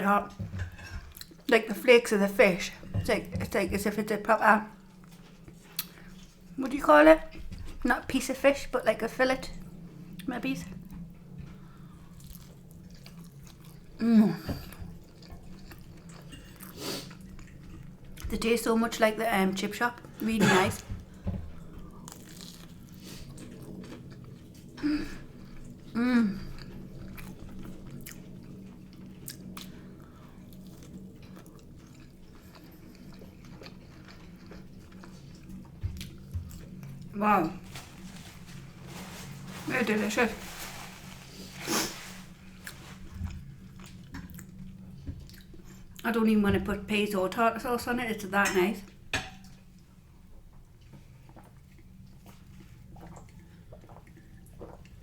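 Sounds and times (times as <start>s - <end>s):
chewing food: 10.8s - 18.3s, 21.0s - 37.1s, 42.6s - 46.0s, 49.4s - 55.0s.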